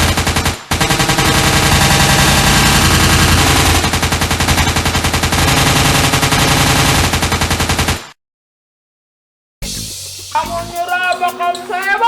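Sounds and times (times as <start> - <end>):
machine gun automatic fire: 0.0 - 8.2.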